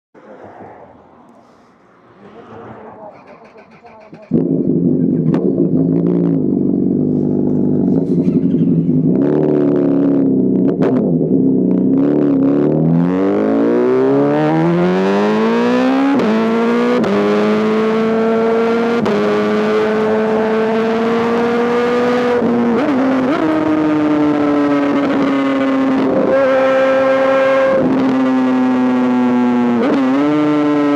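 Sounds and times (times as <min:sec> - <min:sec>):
motorcycle engine accelerating: 0:02.1 - 0:30.9.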